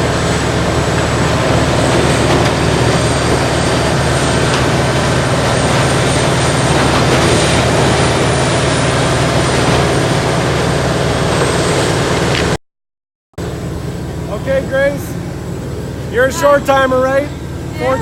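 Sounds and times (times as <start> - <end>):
grinder diesel engine drone: 0.0 - 12.6, 13.4 - 18.0
grinding of brush and stumps: 0.4 - 10.3.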